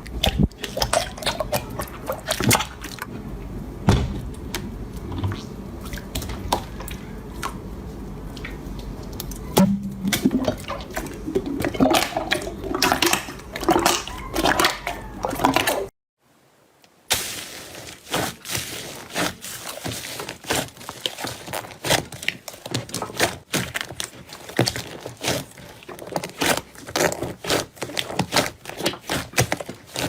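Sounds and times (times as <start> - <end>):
slime squelching and popping: 17.1 - 30.0.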